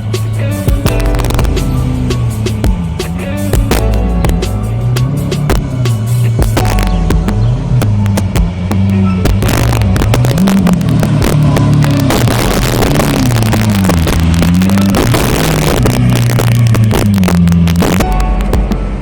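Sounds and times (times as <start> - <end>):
exhaust and road noise rush: 0.0 - 19.0
sports car engine revving: 0.0 - 19.0.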